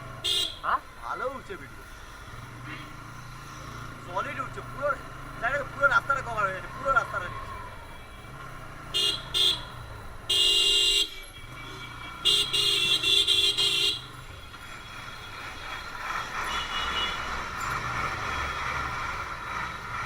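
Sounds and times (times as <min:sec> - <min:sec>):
motorcycle road and engine noise: 0:00.0 - 0:20.0
vehicle horn honking: 0:00.2 - 0:00.8, 0:07.8 - 0:14.3, 0:16.4 - 0:17.6.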